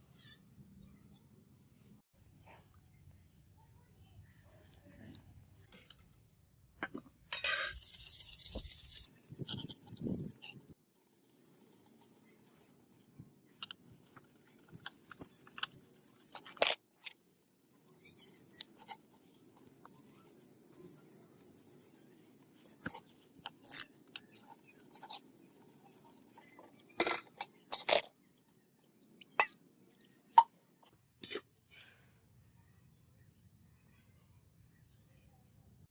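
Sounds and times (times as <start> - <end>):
metal parts clicking and clinking: 14.1 - 17.2.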